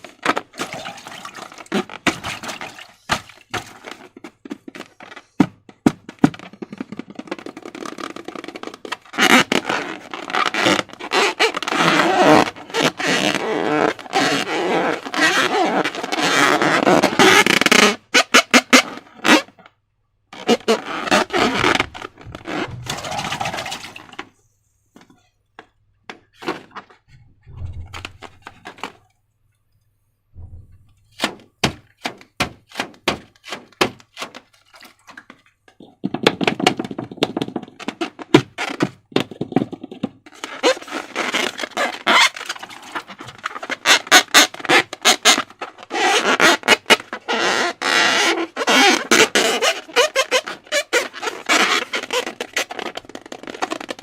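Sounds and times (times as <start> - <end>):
soft low thuds: 21.5 - 23.0, 27.1 - 28.6, 30.3 - 31.2.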